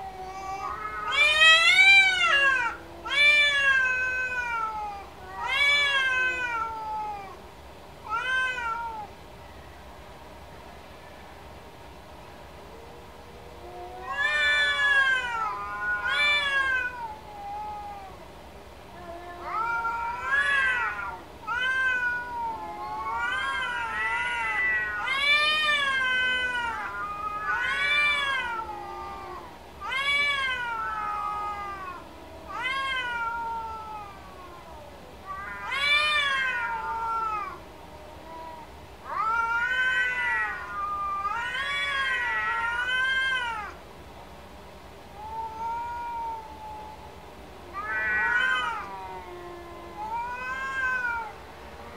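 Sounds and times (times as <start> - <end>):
cats meowing and yowling: 0.0 - 9.2, 12.6 - 43.8, 45.1 - 51.9.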